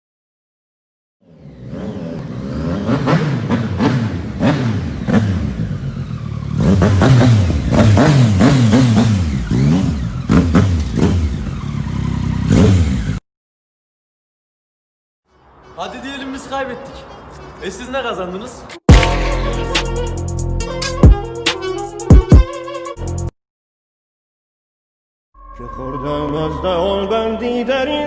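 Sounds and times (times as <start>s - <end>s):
engine revving: 1.2s - 13.2s.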